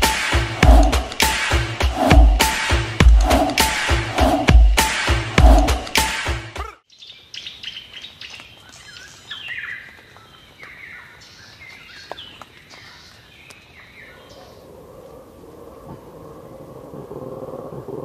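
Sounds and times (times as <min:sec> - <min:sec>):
faint outdoor background: 0:00.0 - 0:18.0
birds chirping and singing: 0:06.9 - 0:14.7.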